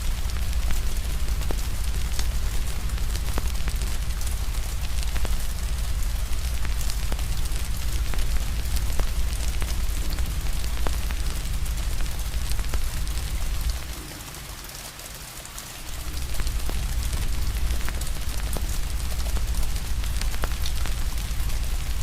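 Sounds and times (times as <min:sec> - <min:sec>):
wood fire crackling and popping: 0:00.0 - 0:14.1, 0:15.8 - 0:22.0
rain hiss: 0:00.0 - 0:22.0
deep low rumble: 0:15.9 - 0:22.0.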